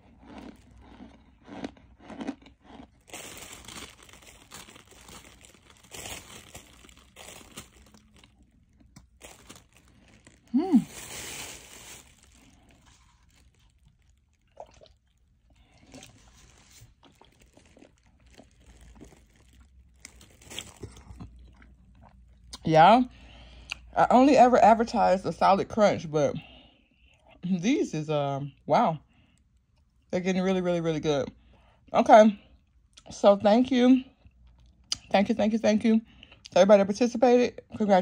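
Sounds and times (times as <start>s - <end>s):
crunching and chewing: 0.0s - 22.6s, 34.2s - 35.1s.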